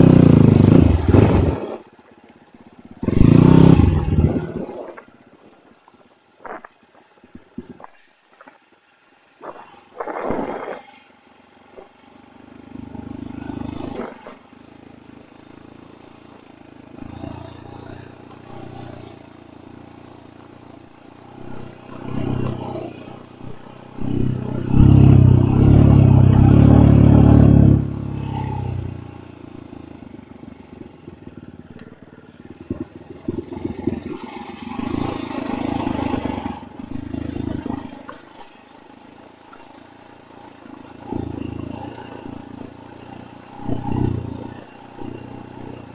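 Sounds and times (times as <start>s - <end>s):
dirt bike engine revving: 0.0s - 1.8s, 3.0s - 4.9s, 16.9s - 20.4s, 21.2s - 29.3s, 31.0s - 38.5s, 40.6s - 45.9s.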